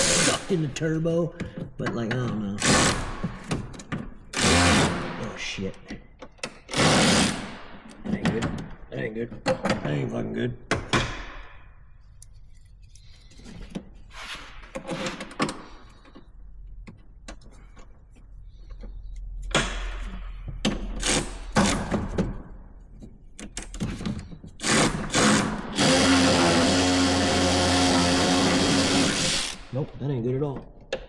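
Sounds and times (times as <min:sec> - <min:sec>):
power tool motor running: 0:24.6 - 0:29.7.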